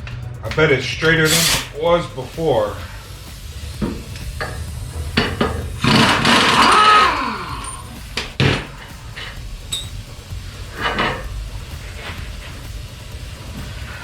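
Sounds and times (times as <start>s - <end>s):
scraping rattle of wheel on axle: 2.7s - 14.0s
metal knocks: 3.8s - 10.1s.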